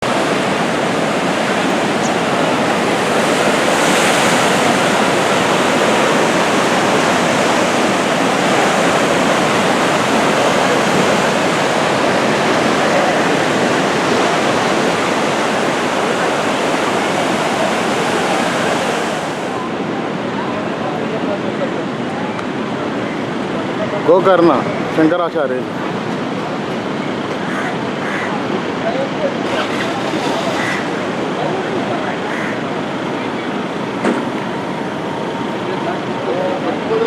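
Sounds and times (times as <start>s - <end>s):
waves breaking on beach: 0.0s - 37.0s.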